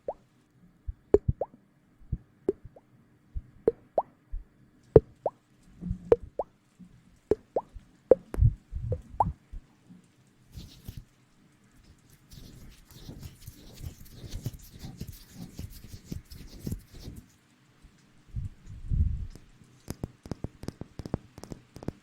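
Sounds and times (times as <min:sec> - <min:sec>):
soft low thuds: 0:00.9 - 0:02.8, 0:07.3 - 0:09.7
short wet plops: 0:07.3 - 0:08.3.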